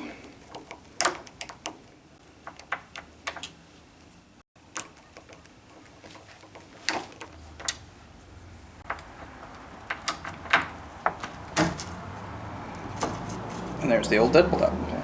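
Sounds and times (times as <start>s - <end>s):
metallic clicks and knocks: 0.4s - 3.6s, 8.8s - 12.0s.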